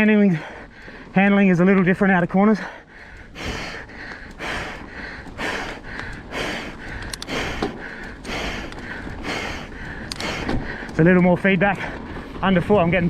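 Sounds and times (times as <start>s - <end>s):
person breathing hard: 0.2s - 1.2s, 2.5s - 11.0s
tyres rumbling on dirt: 3.4s - 13.0s.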